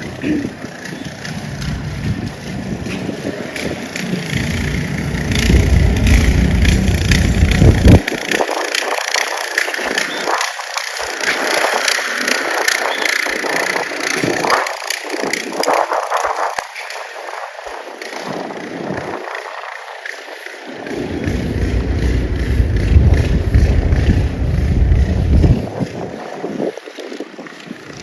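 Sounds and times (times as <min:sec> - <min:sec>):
vehicle engine rumble: 0:00.0 - 0:08.1, 0:20.9 - 0:25.9
hiss of wind and slush: 0:01.7 - 0:28.0.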